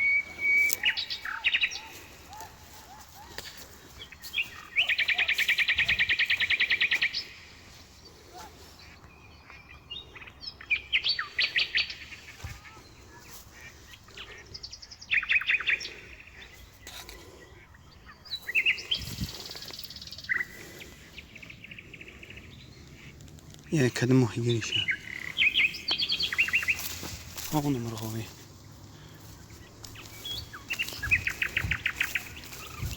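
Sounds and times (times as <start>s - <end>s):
songbird trilling: 0.0s - 2.4s, 21.4s - 28.4s, 29.0s - 32.9s.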